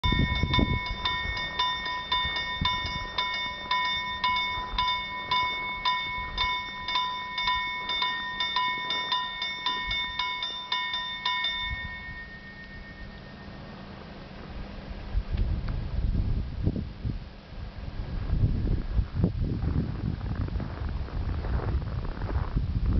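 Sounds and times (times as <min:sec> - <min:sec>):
level crossing bell ringing: 0:00.0 - 0:13.9
freight train rumble: 0:00.0 - 0:22.9.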